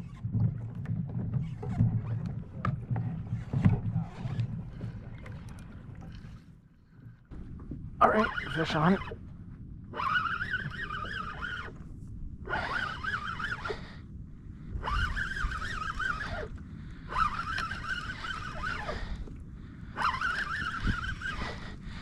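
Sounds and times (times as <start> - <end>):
fishing reel gears whining: 8.0 - 9.1, 9.9 - 11.7, 12.5 - 13.9, 14.8 - 16.5, 17.1 - 19.1, 20.0 - 21.6.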